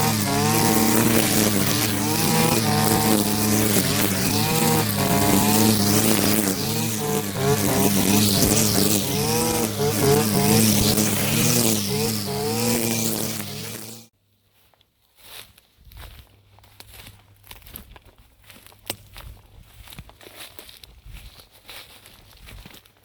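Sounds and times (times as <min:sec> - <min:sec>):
string trimmer engine cutting grass: 0:00.0 - 0:14.1.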